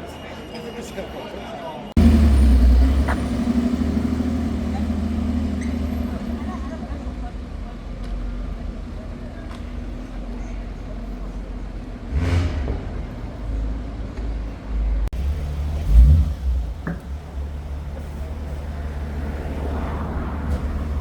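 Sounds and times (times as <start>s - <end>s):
vehicle passing: 2.0s - 7.0s, 12.0s - 14.4s, 15.2s - 21.0s
car engines in traffic: 2.0s - 21.0s.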